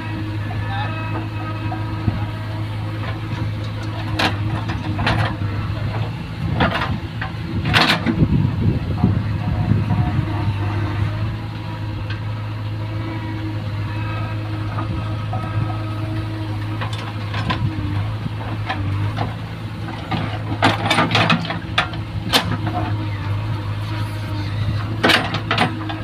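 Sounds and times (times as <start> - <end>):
heavy diesel engine running: 0.0 - 26.0
clanks and thuds: 3.0 - 8.3, 16.7 - 23.0, 24.8 - 26.0.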